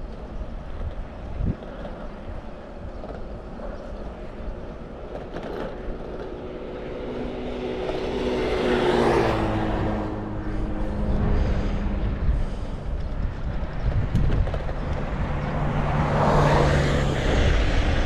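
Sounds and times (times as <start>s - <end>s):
wind and road noise: 0.0s - 18.0s
motor vehicle passing: 5.1s - 18.0s.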